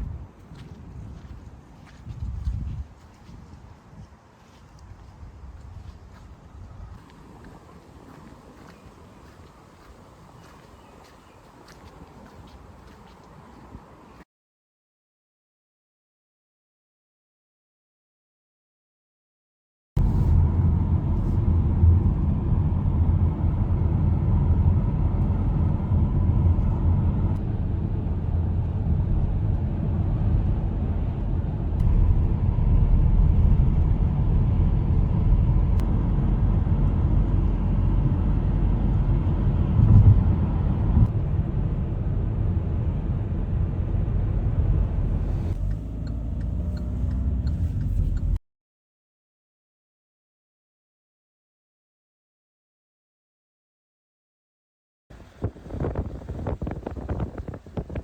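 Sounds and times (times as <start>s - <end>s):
vehicle rumble: 0.0s - 14.2s, 20.0s - 48.4s, 55.1s - 58.0s.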